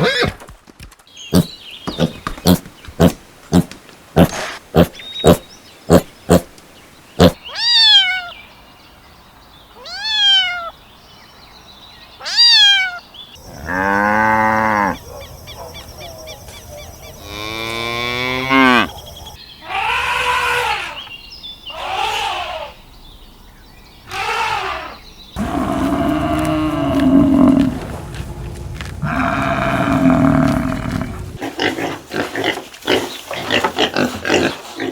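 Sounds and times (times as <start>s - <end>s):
low steady animal call: 12.2s - 22.9s, 24.0s - 31.4s
cattle mooing: 13.5s - 15.0s, 17.2s - 18.9s, 25.4s - 31.4s
short high animal calls: 19.6s - 21.0s, 21.7s - 22.8s, 24.1s - 27.8s.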